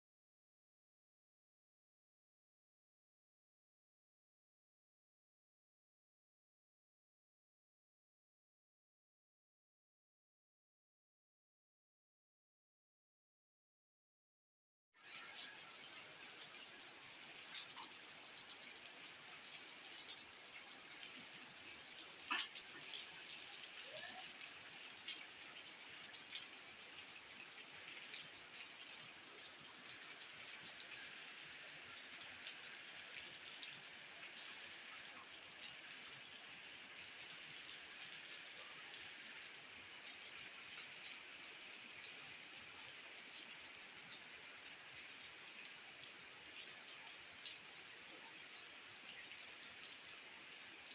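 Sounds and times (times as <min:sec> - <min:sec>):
steady rain falling: 0:15.0 - 0:50.9.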